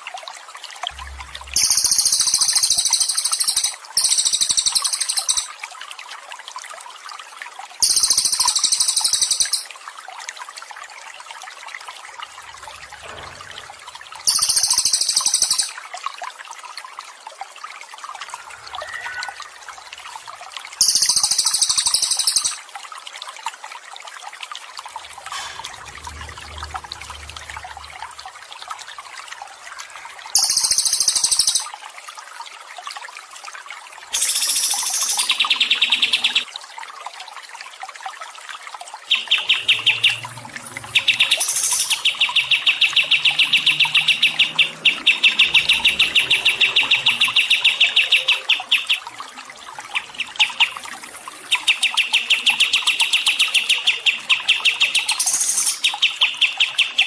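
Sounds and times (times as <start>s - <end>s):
water trickling: 0.0s - 57.0s
high trilling bird call: 1.0s - 5.5s, 7.8s - 9.7s, 14.3s - 15.8s, 18.4s - 20.2s, 20.8s - 22.6s, 30.4s - 31.7s, 34.2s - 36.4s, 39.1s - 49.2s.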